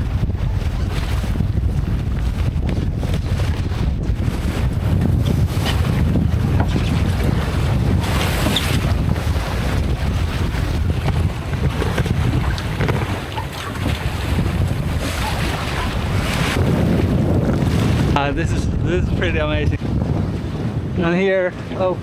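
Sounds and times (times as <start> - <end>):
water rushing along hull: 0.0 - 22.0
wind buffeting microphone: 0.0 - 22.0.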